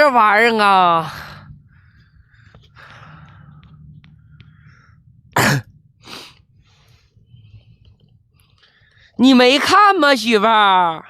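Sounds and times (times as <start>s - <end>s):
person coughing: 5.4s - 5.7s.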